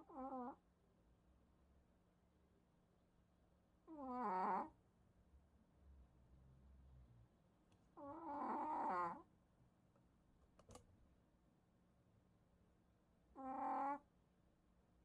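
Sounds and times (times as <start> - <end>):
dog snoring: 0.0 - 0.6, 3.9 - 4.8, 8.0 - 9.2, 13.4 - 14.0.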